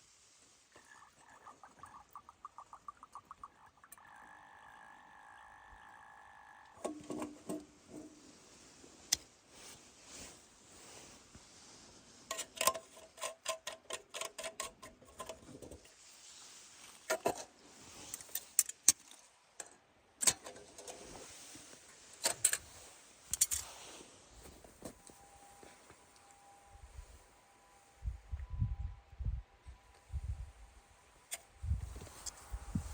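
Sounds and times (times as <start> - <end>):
camp gear clicks and knocks: 6.8 - 8.2, 12.3 - 15.9, 17.1 - 21.1, 23.3 - 23.7.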